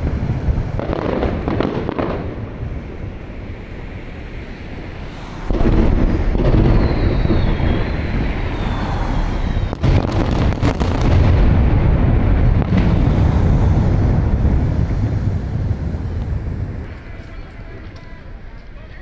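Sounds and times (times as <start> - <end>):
sharp firework cracks: 0.0 - 2.9, 5.4 - 18.6
fireworks booming: 0.0 - 18.8
falling whistle: 6.5 - 9.8.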